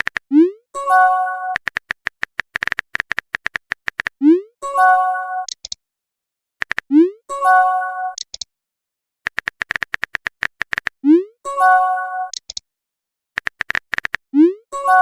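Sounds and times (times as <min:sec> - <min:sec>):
typing clicks: 0:01.5 - 0:04.2, 0:05.4 - 0:05.8, 0:06.6 - 0:06.9, 0:08.1 - 0:08.5, 0:09.3 - 0:11.0, 0:12.3 - 0:12.6, 0:13.4 - 0:14.2.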